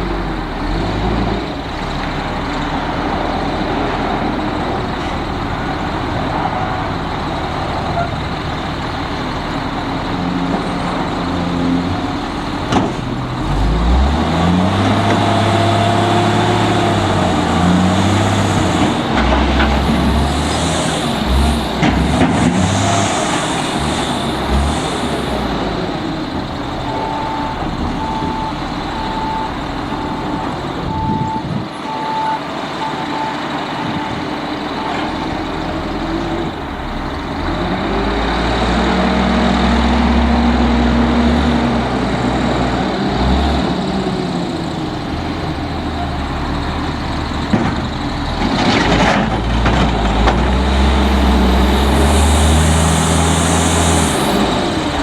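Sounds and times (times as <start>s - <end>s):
diesel engine revving: 0.0s - 55.0s
truck reverse alarm beeping: 3.6s - 11.7s, 13.1s - 21.8s, 22.7s - 38.1s, 50.5s - 55.0s
hiss: 22.6s - 25.6s, 51.0s - 55.0s.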